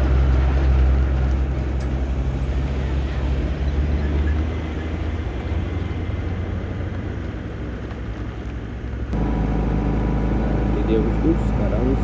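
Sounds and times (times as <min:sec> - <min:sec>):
heavy diesel engine rumbling: 0:00.0 - 0:12.0
steady low hum: 0:09.0 - 0:12.0.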